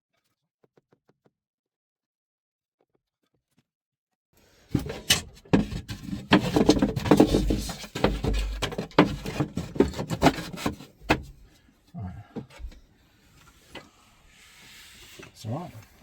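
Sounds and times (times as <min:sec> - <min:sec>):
wood scraping rubs: 0:04.7 - 0:11.6, 0:12.5 - 0:16.0.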